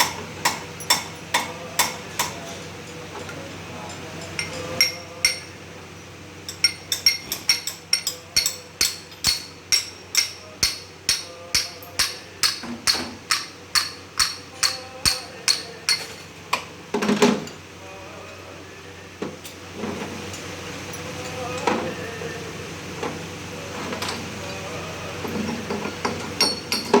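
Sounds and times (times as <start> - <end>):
metal clatter: 6.5 - 16.3
hammer blows on metal: 6.6 - 16.2.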